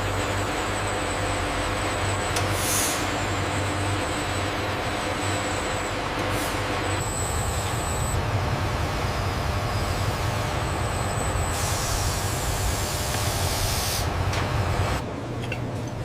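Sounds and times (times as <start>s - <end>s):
loud hiss: 11.5s - 14.1s.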